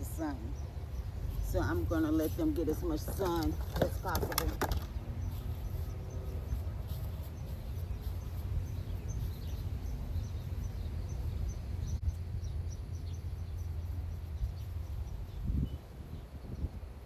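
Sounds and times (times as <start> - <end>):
wind rumbling on microphone: 0.0 - 17.0
bird chirping: 4.8 - 16.7.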